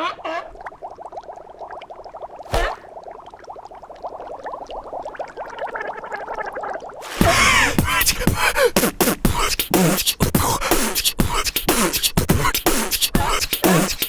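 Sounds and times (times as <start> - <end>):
person beatboxing: 7.2 - 14.0.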